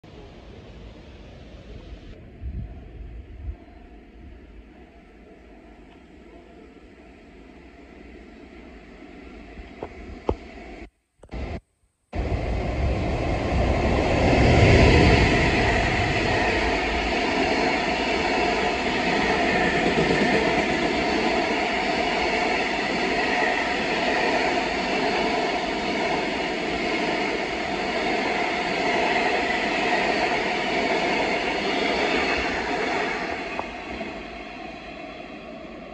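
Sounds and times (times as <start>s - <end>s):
electric locomotive passing at speed: 12.2s - 35.9s.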